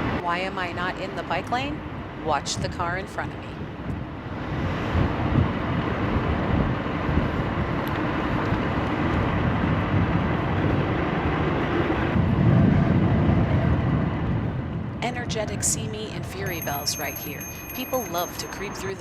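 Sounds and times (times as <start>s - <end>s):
wind rush: 0.0s - 18.6s
low traffic rumble: 0.0s - 19.0s
scooter road noise: 16.3s - 19.0s.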